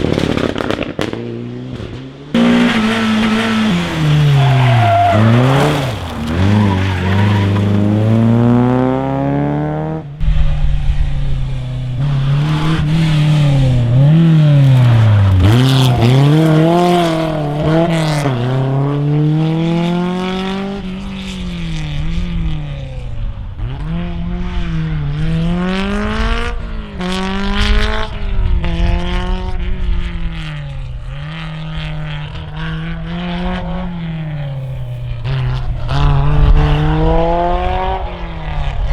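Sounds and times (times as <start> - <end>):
rally car engines revving: 0.0 - 38.9
tyre noise: 2.4 - 19.0, 30.4 - 38.9.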